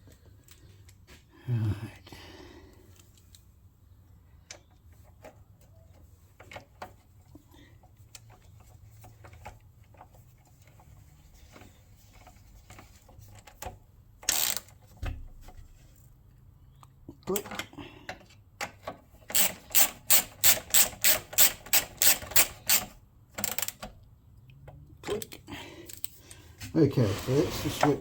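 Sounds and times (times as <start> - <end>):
metal parts and tools clicking: 14.2 - 14.8, 19.2 - 23.9.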